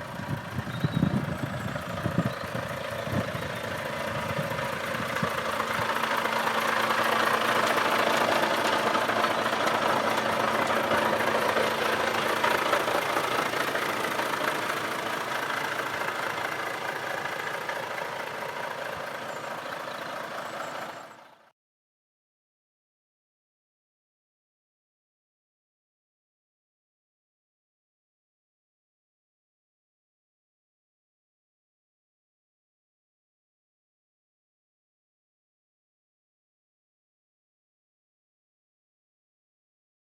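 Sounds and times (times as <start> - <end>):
truck diesel engine idling: 0.0 - 21.5.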